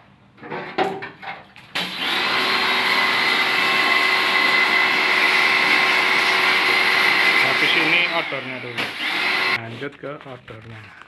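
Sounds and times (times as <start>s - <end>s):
pressure washer whining: 1.8s - 9.6s.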